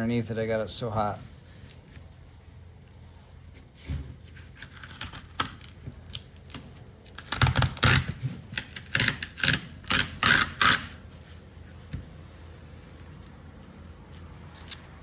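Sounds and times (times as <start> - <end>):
tape crackling: 4.2 - 11.0
tape ripping off: 4.4 - 11.0.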